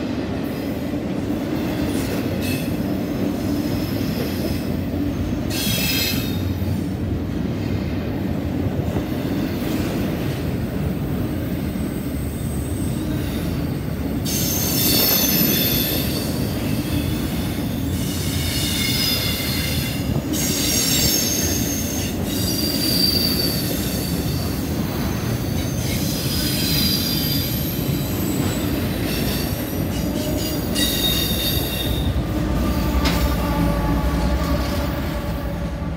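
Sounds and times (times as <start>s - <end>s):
train wheels rumbling on rail: 0.0s - 35.9s
locomotive engine tone: 31.9s - 35.9s.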